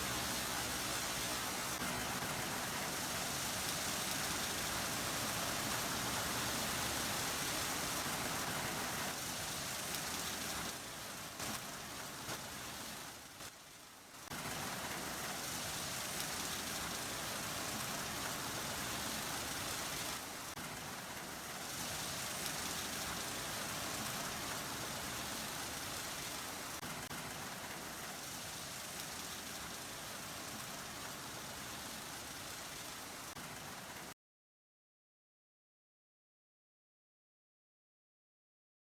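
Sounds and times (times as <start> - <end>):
car wash machinery noise: 0.0 - 13.5.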